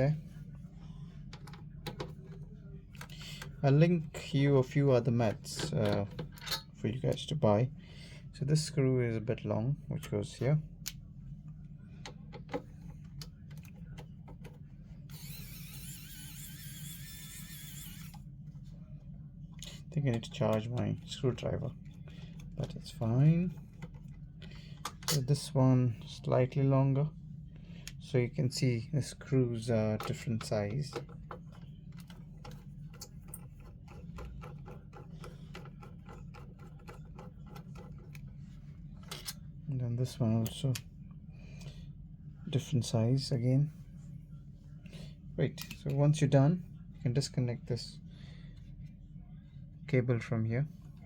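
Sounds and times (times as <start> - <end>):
electric screwdriver whirring: 15.1 - 18.2.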